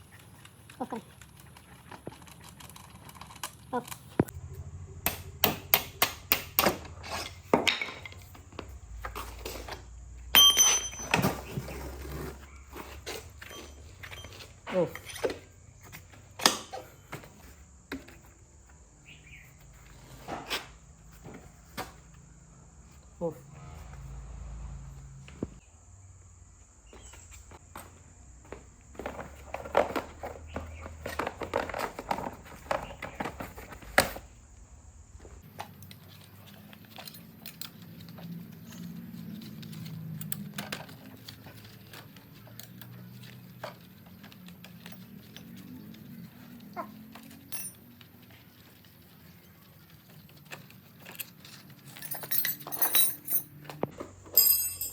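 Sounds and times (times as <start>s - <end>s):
light metallic clicks and clinks: 10.3s - 11.5s, 35.6s - 48.8s, 50.1s - 54.9s.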